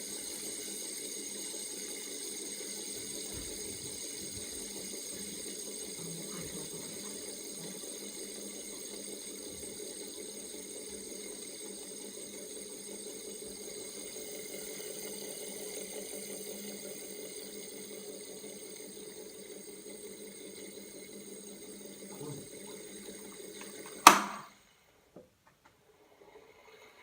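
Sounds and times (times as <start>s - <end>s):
air conditioner humming: 0.0s - 14.7s, 21.8s - 25.5s
fidget spinner spinning: 0.0s - 24.8s, 25.9s - 27.0s.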